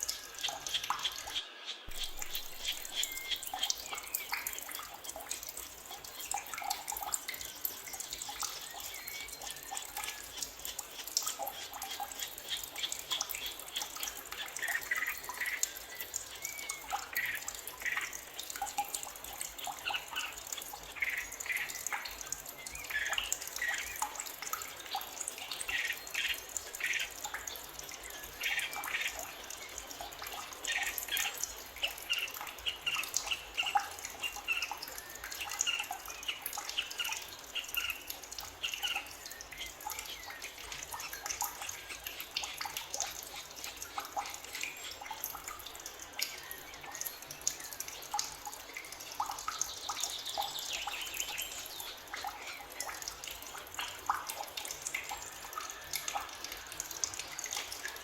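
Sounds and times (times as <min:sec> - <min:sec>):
trickling water: 0:00.0 - 0:58.0
birds chirping and calling: 0:00.1 - 0:04.8.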